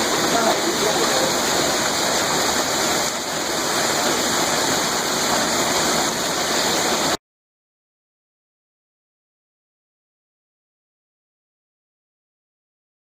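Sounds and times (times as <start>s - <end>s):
hail and rain falling: 0.0s - 7.2s.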